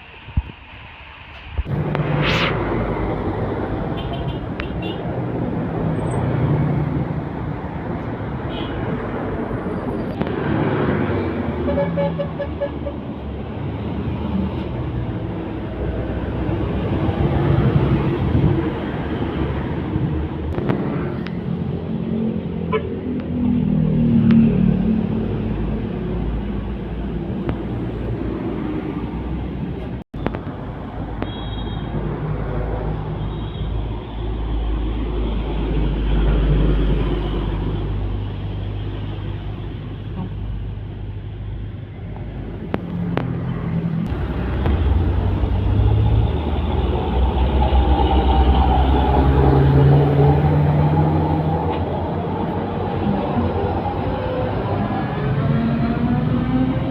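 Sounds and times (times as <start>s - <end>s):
truck engine rumble: 0.0s - 31.2s, 33.8s - 56.9s
road traffic: 0.0s - 56.9s
truck engine driving past: 43.4s - 56.9s.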